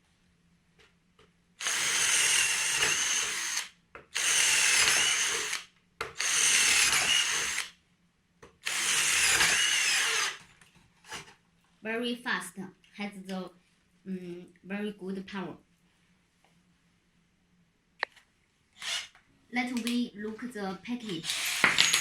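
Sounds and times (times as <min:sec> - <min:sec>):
cordless power drill running: 0:01.6 - 0:07.7, 0:08.6 - 0:10.5, 0:18.8 - 0:19.2, 0:21.2 - 0:22.0.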